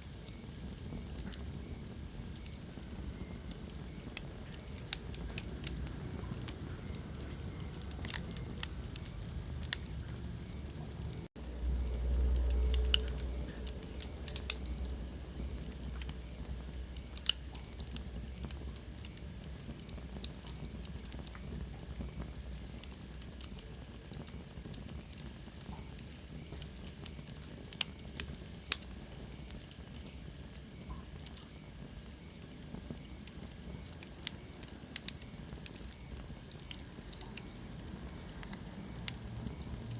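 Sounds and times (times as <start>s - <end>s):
fire popping: 0.0s - 39.9s
wood fire crackling: 0.0s - 39.9s
deep rumble: 4.4s - 17.2s.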